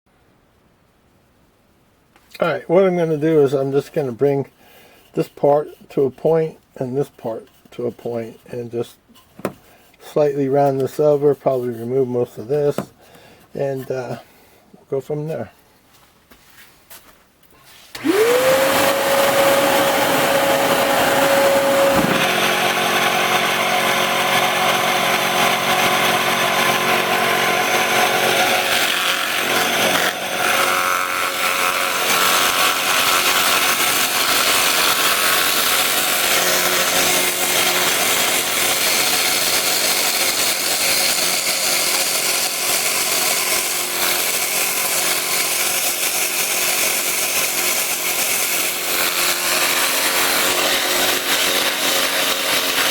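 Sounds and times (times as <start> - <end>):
tool scraping wood: 3.3 - 14.3, 17.6 - 52.9
lathe motor humming: 18.0 - 52.9.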